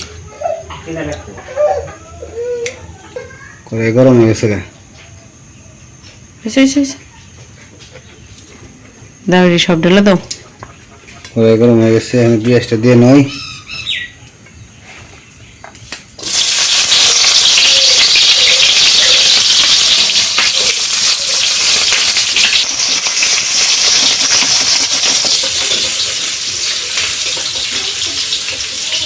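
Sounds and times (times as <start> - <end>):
onion sizzling in oil: 16.2 - 29.0.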